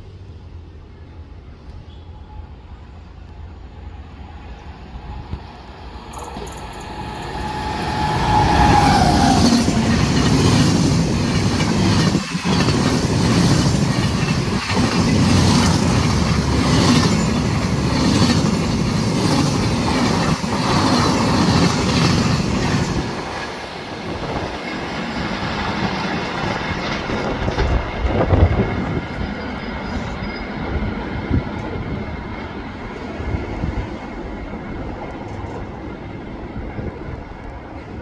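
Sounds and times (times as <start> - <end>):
train rushing noise: 0.0 - 38.0
train wheels clattering over rail joints: 6.1 - 30.3.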